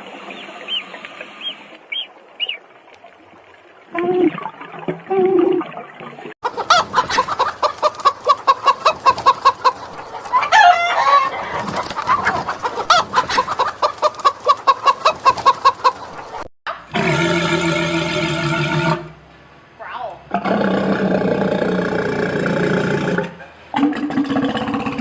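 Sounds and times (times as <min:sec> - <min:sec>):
chicken clucking: 0:06.4 - 0:16.5
chicken squawk: 0:06.4 - 0:16.5
low animal call: 0:16.9 - 0:19.2.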